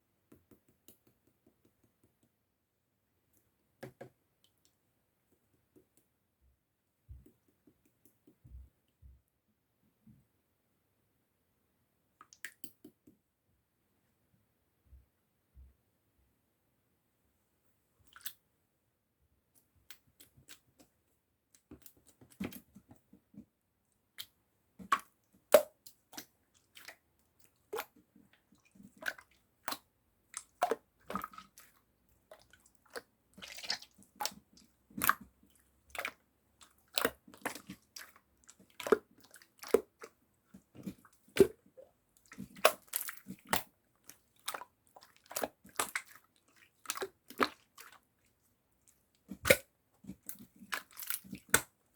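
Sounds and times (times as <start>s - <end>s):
slime squishing: 24.2s - 51.8s.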